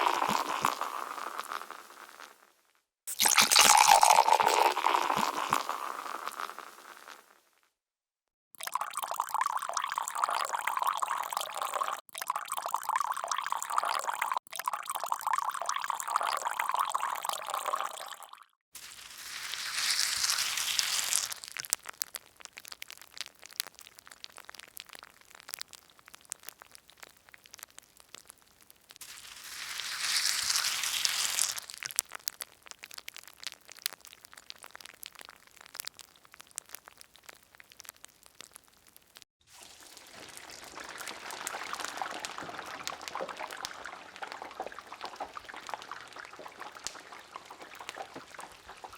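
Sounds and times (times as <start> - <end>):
liquid pouring into a vessel: 0.0 - 1.6, 3.1 - 6.5, 8.6 - 21.7, 29.0 - 32.1, 39.5 - 48.9
irregular crackles and clicks: 19.5 - 48.9.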